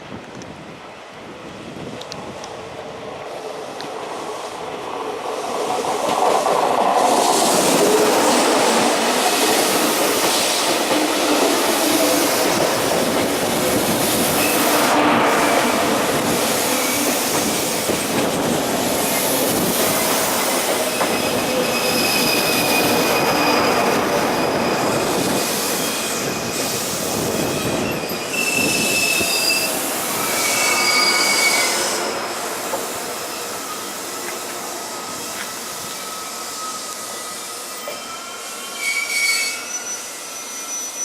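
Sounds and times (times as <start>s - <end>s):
train rail and wheel noise: 0.0s - 41.0s
high-pitched wheel squeals: 20.1s - 32.4s, 33.2s - 41.0s.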